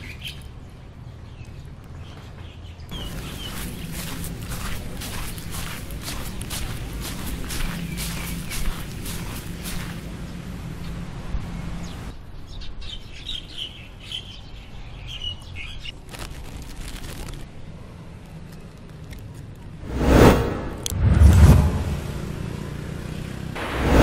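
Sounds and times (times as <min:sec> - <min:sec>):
small birds chirping: 0:00.0 - 0:17.4
outdoor background noise: 0:00.0 - 0:24.0
loud rushing noise: 0:19.8 - 0:22.4, 0:23.6 - 0:24.0.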